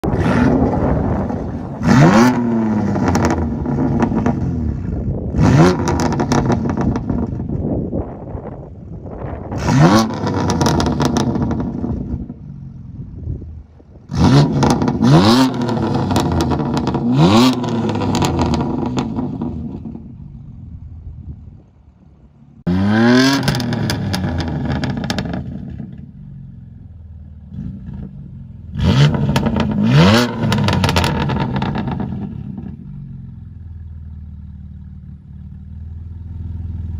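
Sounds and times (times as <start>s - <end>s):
car engine revving: 0.0s - 7.4s, 9.6s - 12.2s, 14.1s - 20.3s, 22.6s - 26.0s, 27.4s - 33.6s.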